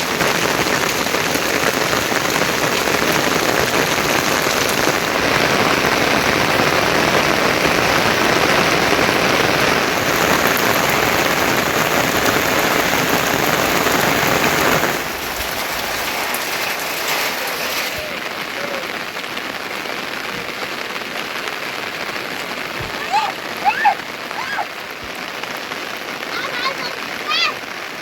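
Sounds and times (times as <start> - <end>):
heavy rain hissing: 0.0 - 28.0.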